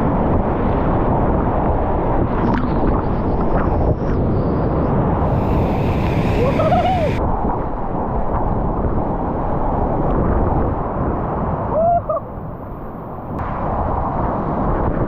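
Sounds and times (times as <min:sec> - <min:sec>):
roar of river rapids: 0:05.2 - 0:07.2.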